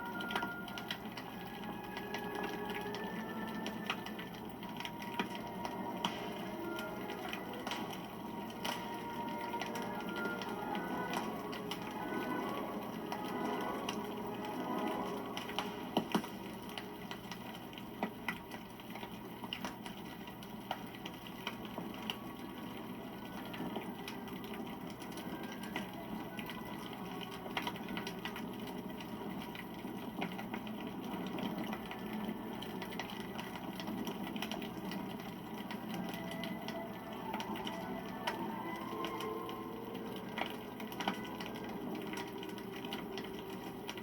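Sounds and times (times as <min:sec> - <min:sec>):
fire crackles and pops: 0:00.0 - 0:44.0.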